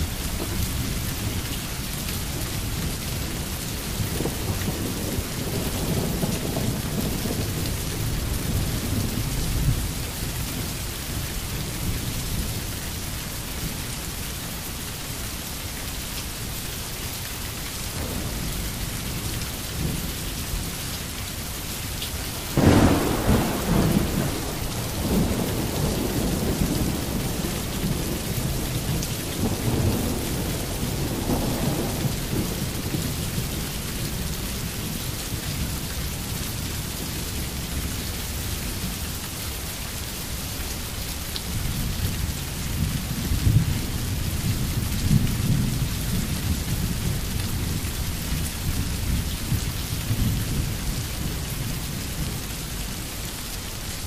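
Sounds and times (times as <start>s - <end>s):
steady rain: 0.0s - 54.0s
rolling thunder: 2.4s - 10.1s, 17.9s - 20.7s, 22.3s - 34.3s
thunder clap: 22.4s - 28.6s.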